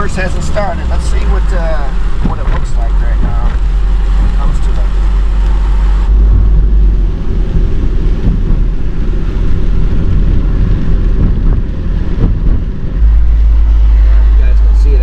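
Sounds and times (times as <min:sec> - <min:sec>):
car running with road noise: 0:00.0 - 0:15.0
wind rumble on microphone: 0:00.0 - 0:15.0.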